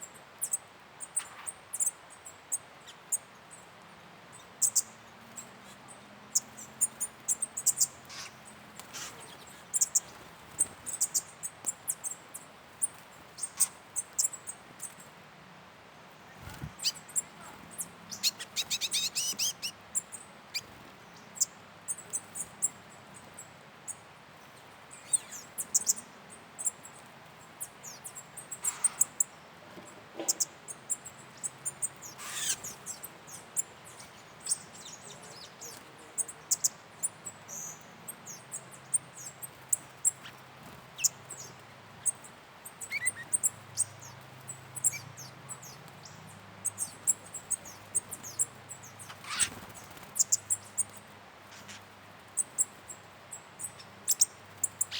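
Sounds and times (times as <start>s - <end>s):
birds chirping: 0.0s - 15.2s, 16.0s - 54.9s
bird trill: 16.5s - 20.8s, 30.2s - 40.4s, 41.0s - 52.8s.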